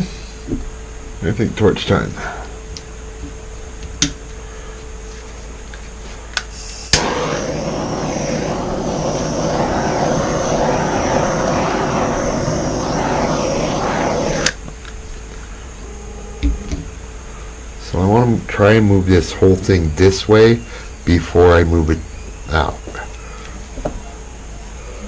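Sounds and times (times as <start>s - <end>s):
torch click: 6.4s - 15.0s
torch flame hissing: 6.4s - 15.8s.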